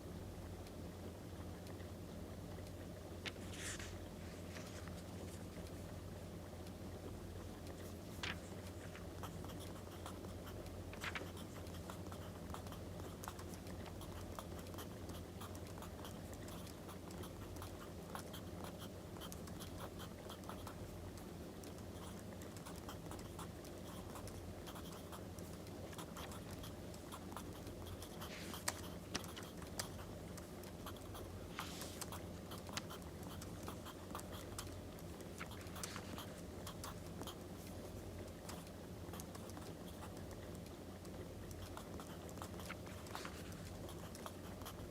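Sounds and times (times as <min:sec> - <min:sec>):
paper scratching and rustling: 0:03.3 - 0:05.4, 0:08.1 - 0:09.0, 0:10.9 - 0:11.4, 0:35.4 - 0:36.4, 0:42.6 - 0:44.2.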